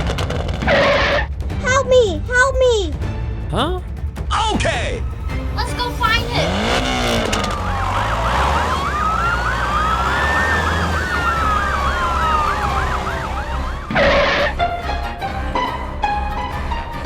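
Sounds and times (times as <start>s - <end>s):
siren wailing: 6.2s - 14.6s
siren yelp: 6.2s - 14.6s.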